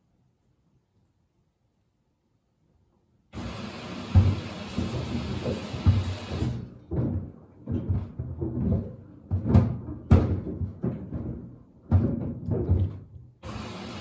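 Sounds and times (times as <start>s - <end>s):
sneakers thudding in dryer drum: 4.0s - 13.3s.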